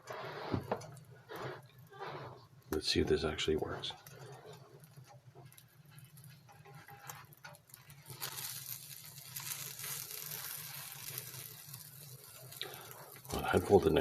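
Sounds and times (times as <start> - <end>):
steady hiss: 7.9 - 14.0.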